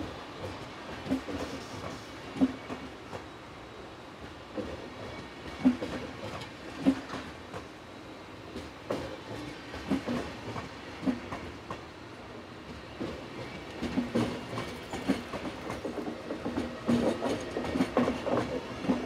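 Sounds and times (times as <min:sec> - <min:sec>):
train rumble: 0:04.1 - 0:19.0.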